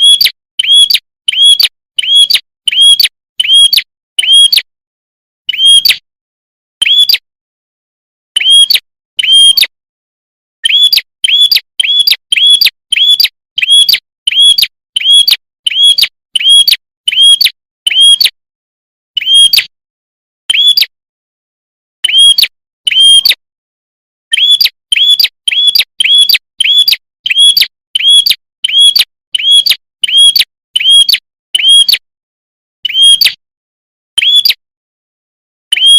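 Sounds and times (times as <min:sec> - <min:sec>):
songbird sharp chirps: 0:00.0 - 0:04.7, 0:05.5 - 0:06.0, 0:06.8 - 0:07.3, 0:08.4 - 0:09.8, 0:10.6 - 0:18.3, 0:19.2 - 0:19.7, 0:20.5 - 0:21.0, 0:22.0 - 0:23.4, 0:24.3 - 0:32.0, 0:32.8 - 0:33.4, 0:34.2 - 0:34.6.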